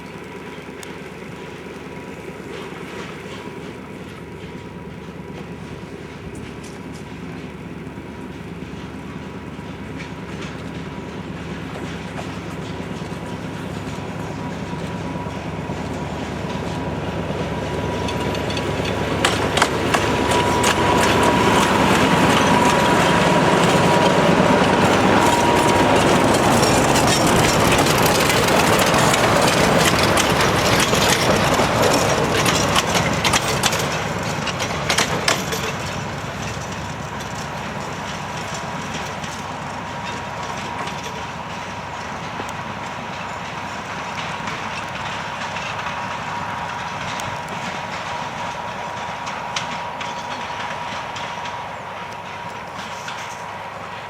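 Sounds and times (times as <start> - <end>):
train rolling by: 0.0 - 54.0
wheels clicking over rail joints: 0.0 - 54.0.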